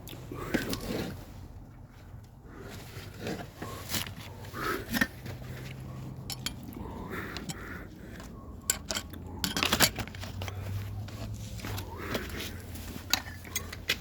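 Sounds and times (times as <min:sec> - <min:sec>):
hard objects clinking and knocking: 0:06.2 - 0:06.7, 0:08.6 - 0:10.6.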